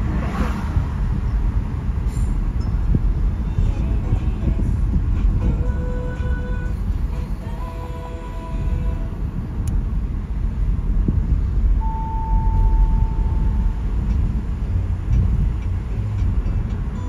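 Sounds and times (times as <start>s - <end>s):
tyres rumbling on wet road: 0.0s - 17.0s
steady mid-pitched tone: 11.7s - 17.0s.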